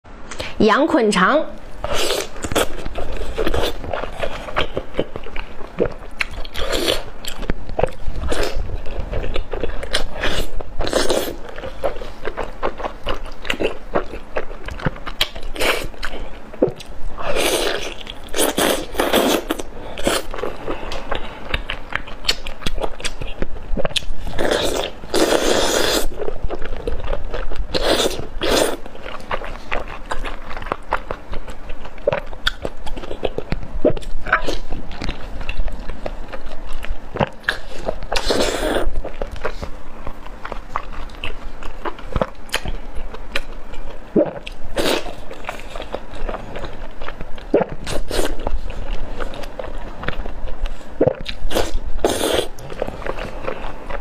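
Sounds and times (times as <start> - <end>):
wet biting and chewing: 1.8 - 54.0.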